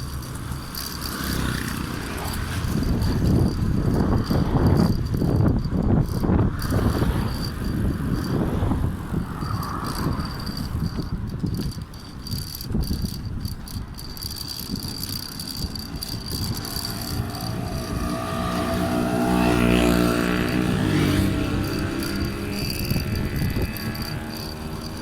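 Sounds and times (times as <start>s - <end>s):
wind buffeting microphone: 0.0s - 25.0s
vehicle engine passing: 15.5s - 25.0s.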